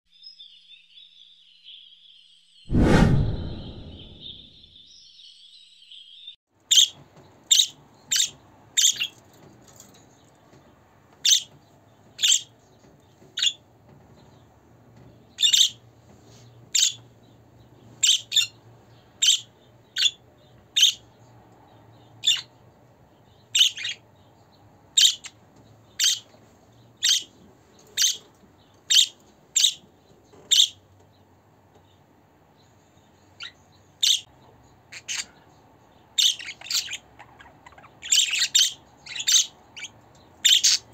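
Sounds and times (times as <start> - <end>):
budgerigar chirping: 15.4 - 15.8, 19.2 - 20.2, 22.2 - 22.5, 23.5 - 24.0, 25.0 - 25.4, 26.0 - 26.2, 27.0 - 27.3, 28.0 - 28.2, 28.9 - 29.8, 30.5 - 30.8, 33.4 - 34.2, 34.9 - 35.4, 36.2 - 40.9.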